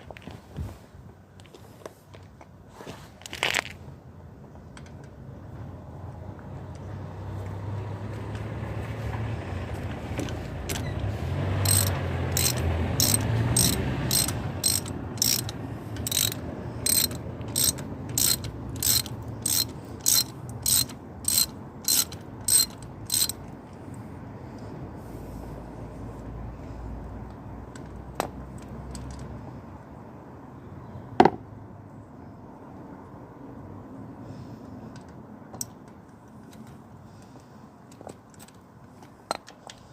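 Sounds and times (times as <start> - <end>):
hand ratchet clicking: 11.6 - 23.4.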